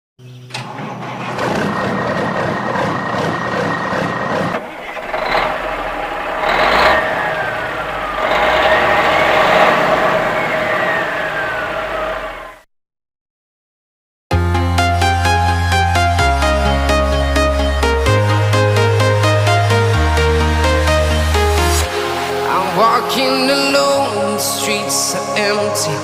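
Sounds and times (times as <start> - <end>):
engine whine: 0.2 - 12.7
heavy truck engine running: 0.5 - 12.6.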